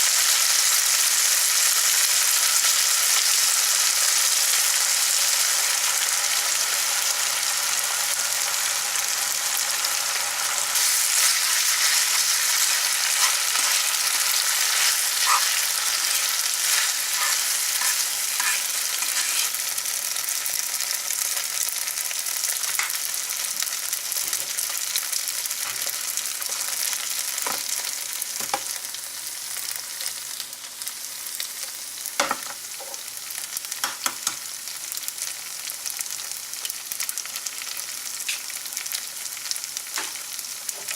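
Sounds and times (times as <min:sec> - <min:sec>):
noodles sizzling in a pan: 0:00.0 - 0:40.9
utensil scraping a pan: 0:10.8 - 0:19.6.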